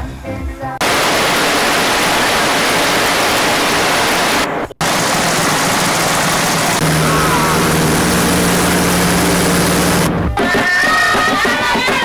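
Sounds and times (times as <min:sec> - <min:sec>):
waterfall roaring: 0:00.8 - 0:10.1.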